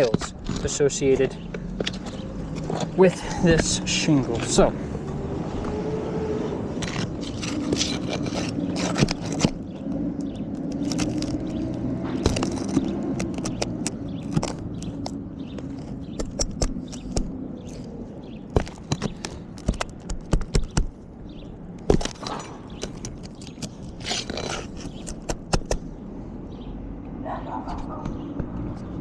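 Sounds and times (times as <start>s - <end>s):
roofing tool scraping: 0.0s - 1.3s, 6.8s - 17.9s, 21.8s - 25.8s
roofing tool clicks and taps: 6.8s - 21.0s, 21.8s - 25.9s.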